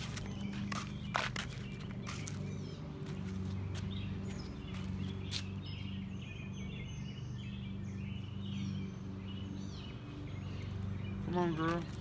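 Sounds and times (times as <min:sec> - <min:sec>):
footsteps on concrete: 0:00.0 - 0:06.0, 0:11.4 - 0:12.0
small birds chirping: 0:00.0 - 0:12.0.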